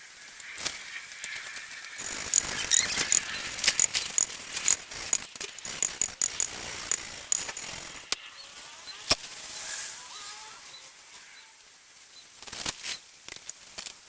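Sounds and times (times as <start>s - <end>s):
valve clicking against seat: 2.0s - 8.2s.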